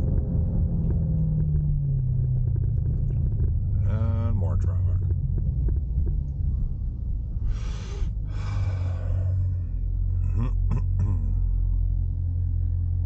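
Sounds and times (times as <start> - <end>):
car engine droning: 0.0 - 13.0
breathy exhales: 7.4 - 9.7.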